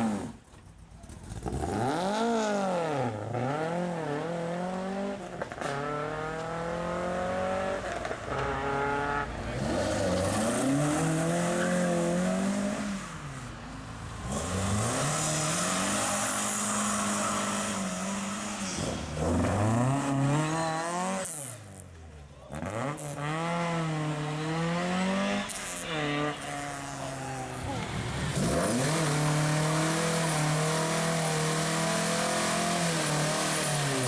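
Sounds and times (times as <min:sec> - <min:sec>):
car engine revving through gears: 0:01.2 - 0:13.5, 0:14.2 - 0:21.8, 0:22.5 - 0:34.0.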